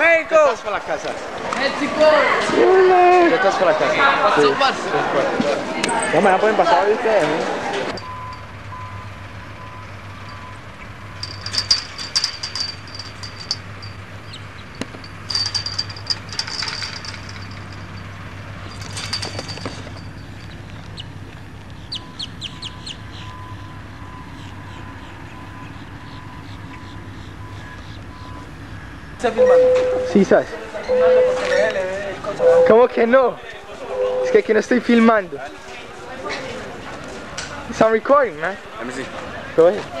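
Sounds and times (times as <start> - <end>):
birds chirping: 8.0 - 30.0.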